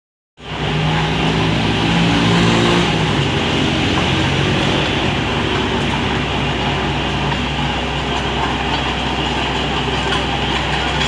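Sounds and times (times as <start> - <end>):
excavator diesel engine running: 0.4 - 11.0.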